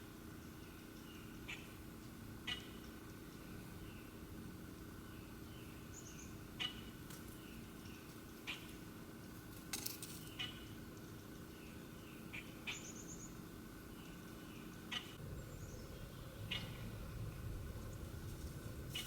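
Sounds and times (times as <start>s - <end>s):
low background rumble: 10.3s - 19.0s.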